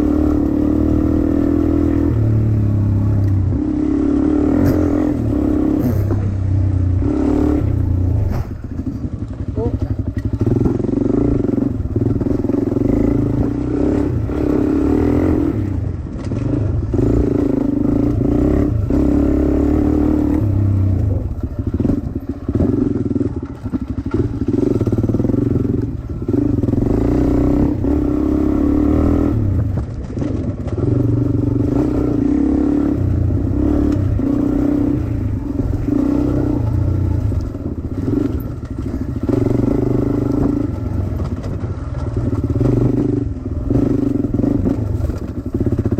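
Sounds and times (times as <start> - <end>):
dirt bike engine revving: 0.0 - 8.9, 9.5 - 45.9.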